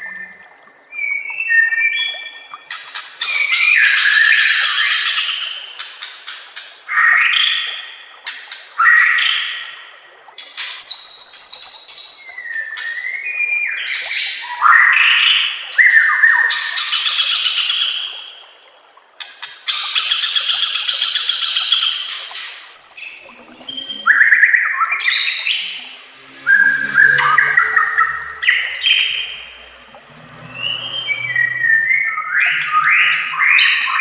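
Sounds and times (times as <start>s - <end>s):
bird singing whistled trills: 22.8s - 29.5s.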